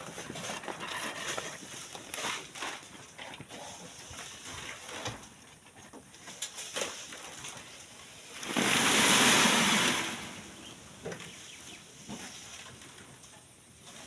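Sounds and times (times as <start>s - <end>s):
sand and gravel pouring: 6.7s - 11.4s.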